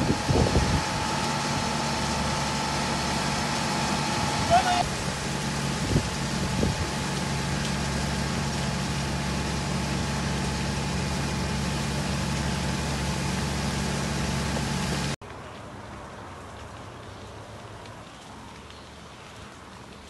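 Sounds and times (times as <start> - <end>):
engine idling: 0.0 - 15.2.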